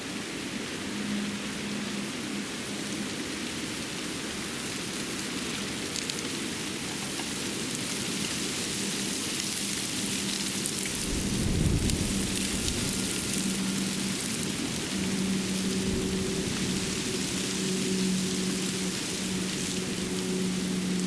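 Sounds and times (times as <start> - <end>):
steady outdoor hiss: 0.0 - 21.0
faint light pattering ticks: 5.5 - 15.8.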